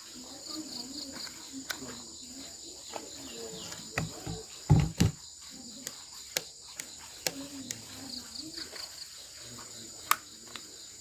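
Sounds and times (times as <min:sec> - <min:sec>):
insect chirring: 0:00.0 - 0:11.0
dull thumps: 0:03.9 - 0:05.2
sharp clicks and knocks: 0:03.9 - 0:05.2.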